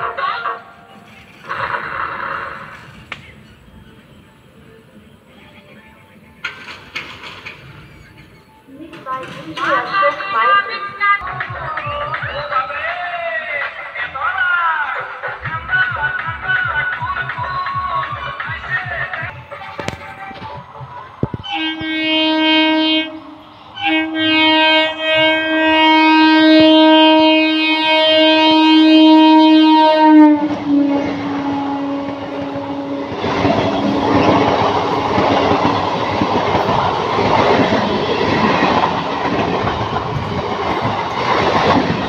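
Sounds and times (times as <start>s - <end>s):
train coaches rushing past: 0.0s - 42.0s
train horn blasts: 21.4s - 35.7s.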